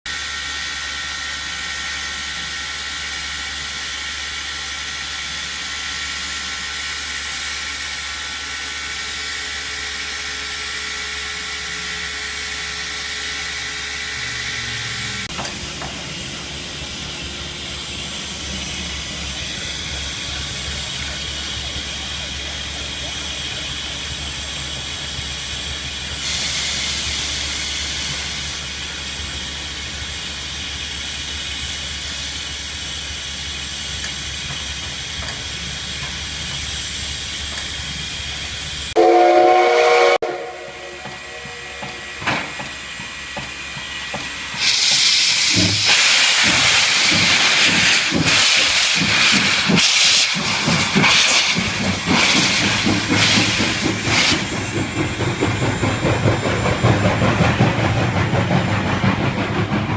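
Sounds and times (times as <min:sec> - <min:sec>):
rushing steam with chuffs: 0:00.1 - 0:59.9
steam locomotive hissing: 0:00.1 - 0:59.9
steam whistle blast: 0:39.0 - 0:42.3.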